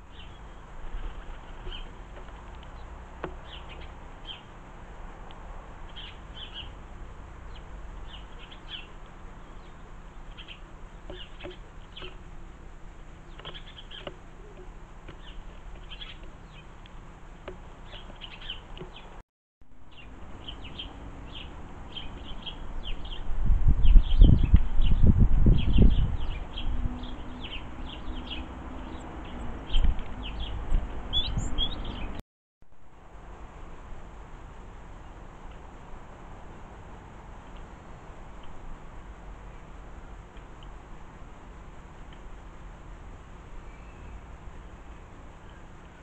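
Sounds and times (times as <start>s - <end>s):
birds chirping: 0.0s - 19.2s, 19.9s - 32.2s, 43.6s - 46.0s.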